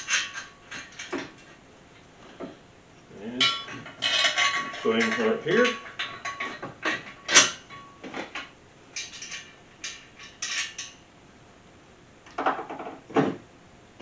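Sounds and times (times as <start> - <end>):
metal bolts clinking on steel: 0.0 - 1.6, 3.4 - 11.0.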